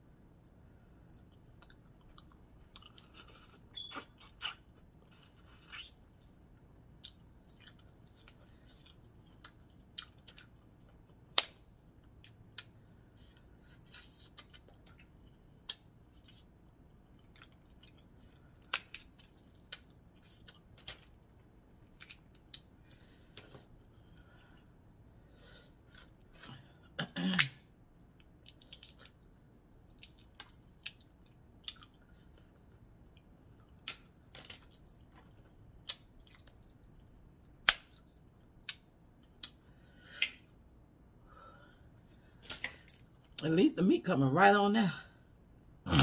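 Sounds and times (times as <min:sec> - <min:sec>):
faint chewing: 0:00.4 - 0:11.4, 0:12.0 - 0:27.5, 0:28.2 - 0:37.2.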